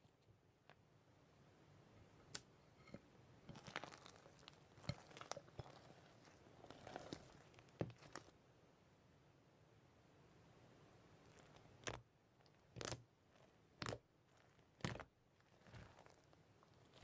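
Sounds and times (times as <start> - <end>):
faint crunching and crackling: 2.2 - 8.4, 11.1 - 17.0.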